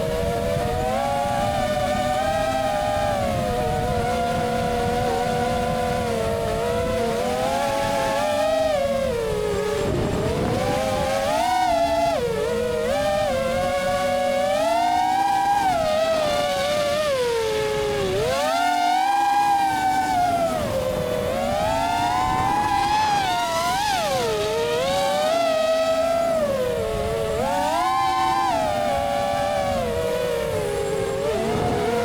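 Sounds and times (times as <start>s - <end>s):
drone motors whining: 0.0s - 32.0s.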